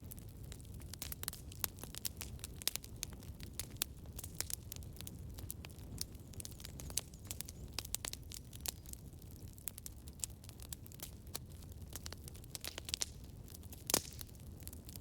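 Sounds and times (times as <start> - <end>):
campfire crackling: 0.0 - 15.0
wood snapping and popping: 12.4 - 14.4.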